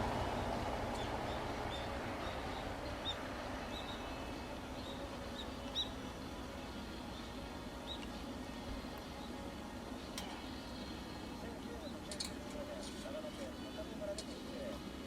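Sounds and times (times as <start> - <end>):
steady outdoor hiss: 0.0 - 15.0
small bird chirping: 1.0 - 4.2.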